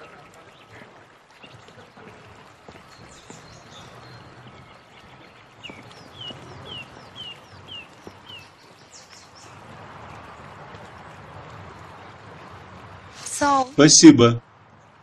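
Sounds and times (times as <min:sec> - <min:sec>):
small bird chirping: 0:02.6 - 0:09.6.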